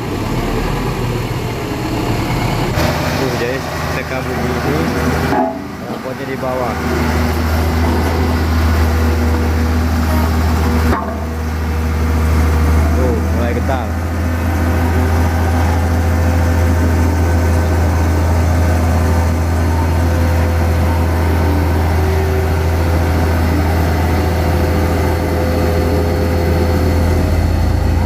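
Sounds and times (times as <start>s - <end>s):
road roller engine and vibrating drum hum: 0.0s - 28.0s.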